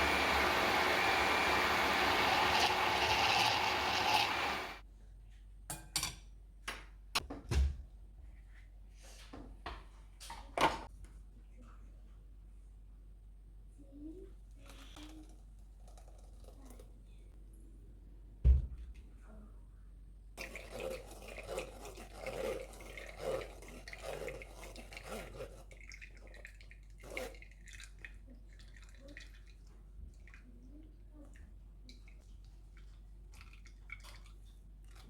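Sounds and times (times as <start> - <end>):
liquid splashing and trickling: 22.1 - 30.6, 31.8 - 35.0.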